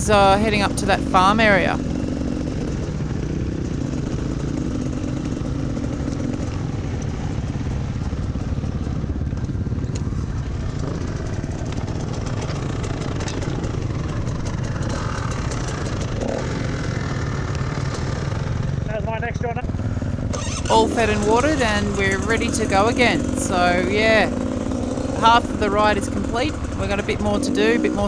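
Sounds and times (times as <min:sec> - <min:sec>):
dirt bike engine running: 0:00.0 - 0:28.0
light ticks and clatter: 0:03.8 - 0:18.4.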